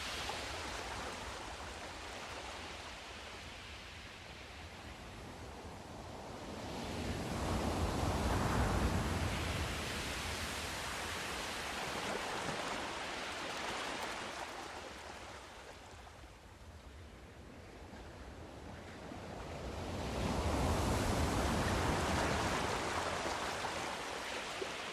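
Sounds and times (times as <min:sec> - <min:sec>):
sea surf waves breaking: 0:07.2 - 0:16.0, 0:19.4 - 0:24.9.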